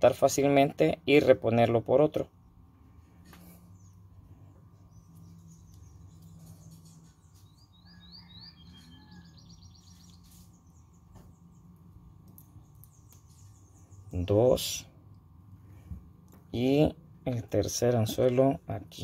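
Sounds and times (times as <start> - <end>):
low steady hum: 0.0 - 19.0
faint bird chirping: 2.4 - 15.9.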